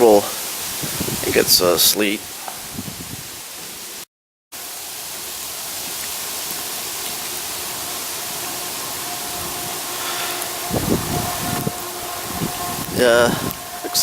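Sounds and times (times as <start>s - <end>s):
rain and sleet falling: 0.0s - 14.0s
faint hum: 6.8s - 14.0s.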